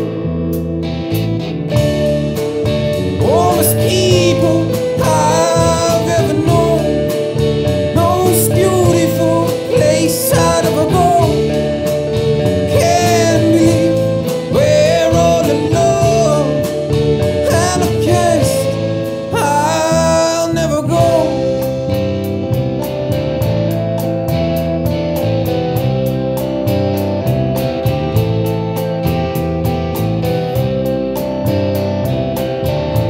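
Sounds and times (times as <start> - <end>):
rock band playing: 0.0 - 33.0
person singing: 3.2 - 21.9.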